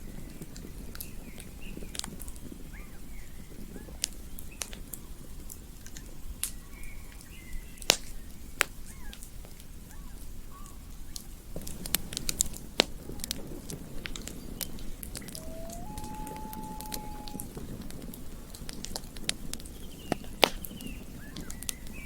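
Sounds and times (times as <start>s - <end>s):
faint chirps: 15.2s - 17.5s.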